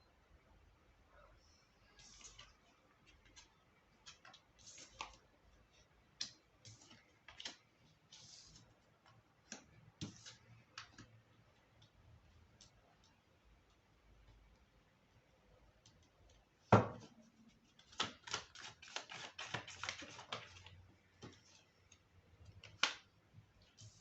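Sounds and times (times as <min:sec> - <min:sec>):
cards being shuffled: 0:17.7 - 0:21.5.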